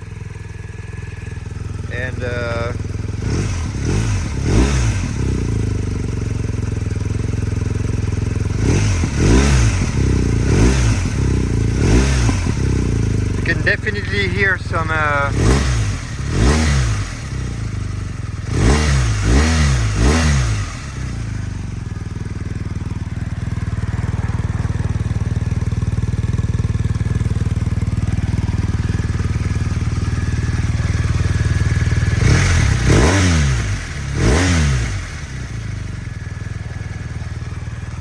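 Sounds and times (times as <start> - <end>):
motorcycle engine blipping and idling: 0.0 - 38.0.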